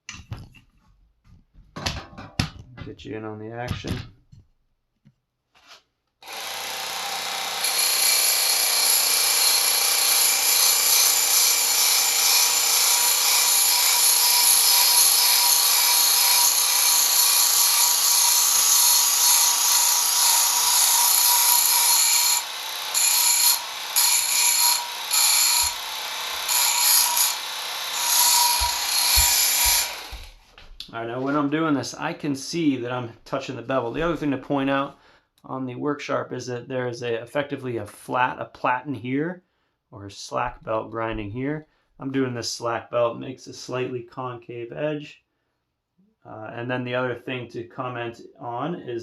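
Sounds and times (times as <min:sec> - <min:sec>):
belt sharpener grinding steel: 0:06.3 - 0:30.3.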